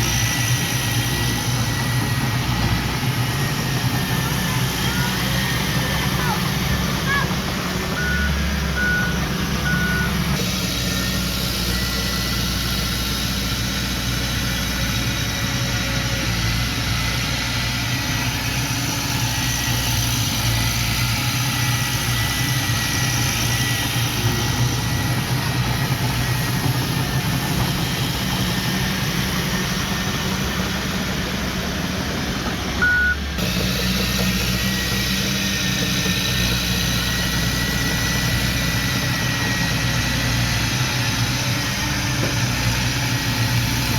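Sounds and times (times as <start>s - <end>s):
heavy machinery engine running: 0.0s - 43.9s
reversing alarm beep: 7.9s - 10.4s, 32.8s - 33.3s.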